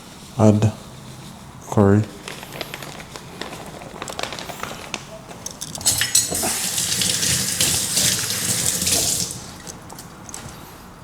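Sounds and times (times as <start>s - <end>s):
water running from a tap: 5.5s - 10.4s.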